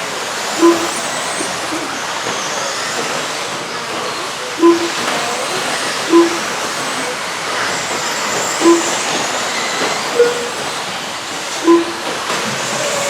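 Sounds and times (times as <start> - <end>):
electric rc trucks hissing: 0.0 - 13.0
short electronic beeps: 0.6 - 2.0, 4.6 - 7.2, 8.4 - 9.3, 9.9 - 10.7, 11.6 - 12.2.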